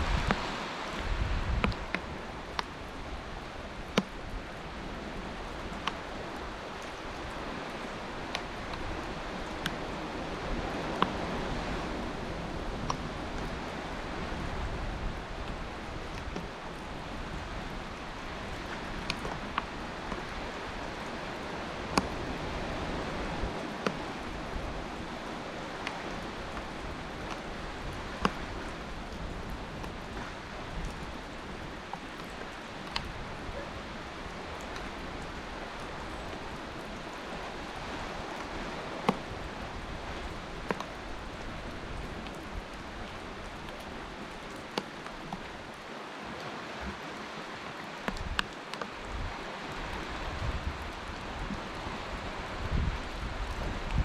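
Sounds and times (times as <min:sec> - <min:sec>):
water washing on shore: 0:00.0 - 0:54.0.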